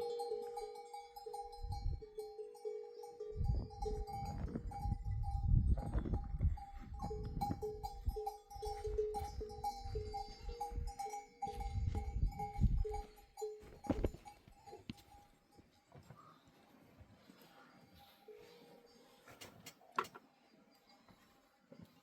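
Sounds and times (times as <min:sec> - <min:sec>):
sheep bells clanking: 0:00.0 - 0:22.0.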